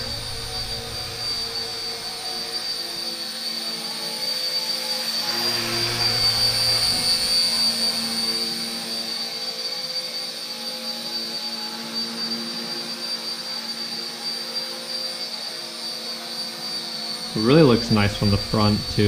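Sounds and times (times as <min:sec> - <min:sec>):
rotor buzzing: 0:00.0 - 0:04.0, 0:04.9 - 0:09.4, 0:17.3 - 0:19.0
model helicopter motor whine: 0:00.0 - 0:19.0.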